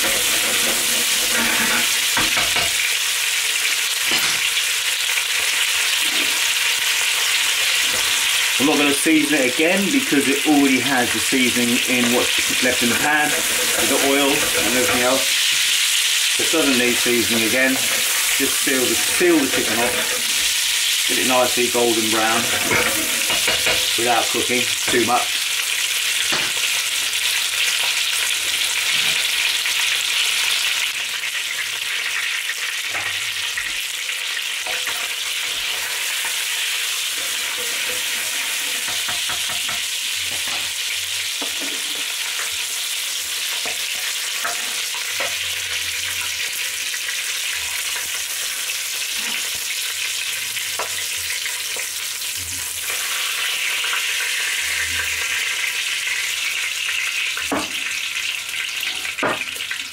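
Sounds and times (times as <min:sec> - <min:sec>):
chicken sizzling in hot oil: 0:00.0 - 0:59.9
slotted spoon scraping pot: 0:17.4 - 0:20.6, 0:22.3 - 0:23.6.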